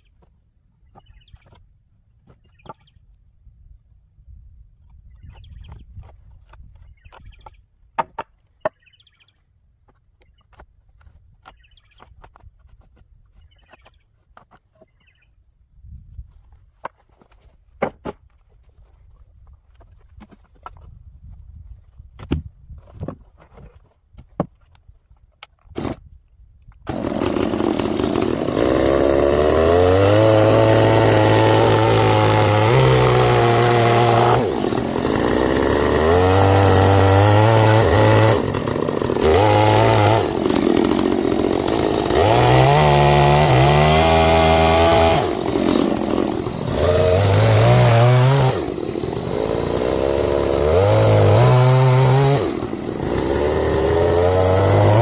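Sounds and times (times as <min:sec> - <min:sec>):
chainsaw revving while milling wood: 0:26.9 - 0:55.0.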